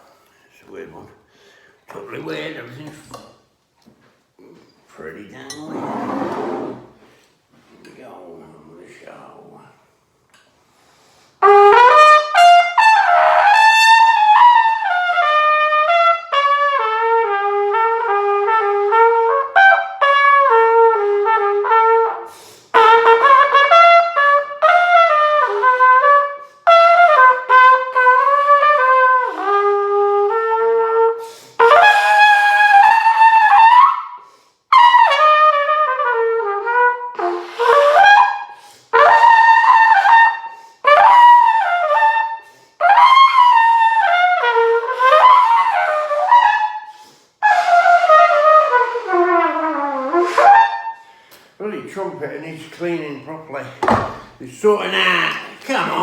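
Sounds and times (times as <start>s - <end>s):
solo trumpet melody: 11.4s - 51.2s.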